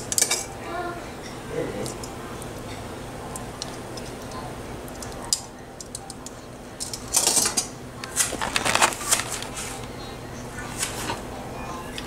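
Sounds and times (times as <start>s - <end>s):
utensils clattering against pot: 0.0s - 2.9s, 5.3s - 9.9s.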